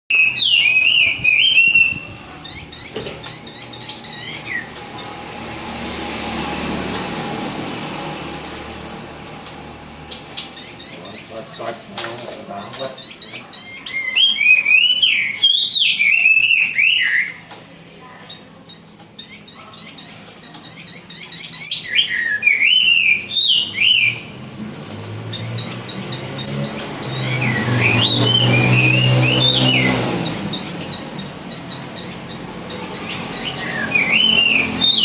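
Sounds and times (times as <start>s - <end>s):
bird singing whistled phrases: 0.1s - 4.7s, 13.0s - 17.4s, 20.8s - 24.3s, 27.2s - 31.0s, 33.0s - 35.0s.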